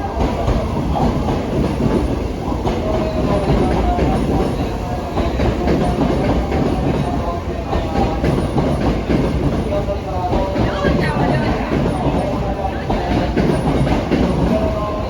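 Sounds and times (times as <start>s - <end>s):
electric train rumbling on rails: 0.0s - 15.0s.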